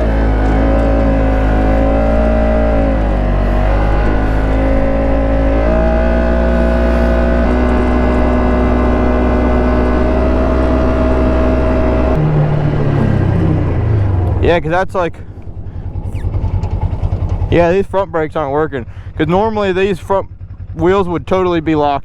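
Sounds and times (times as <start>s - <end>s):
engine running under throttle: 0.0s - 22.0s.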